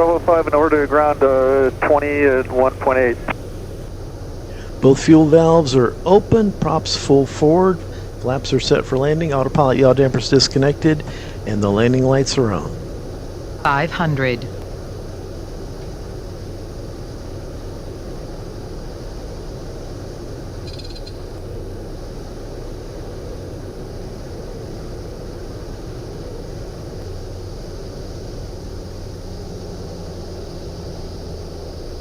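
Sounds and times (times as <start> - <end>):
turboprop engine drone: 0.0 - 32.0
faint high tone: 13.6 - 14.6.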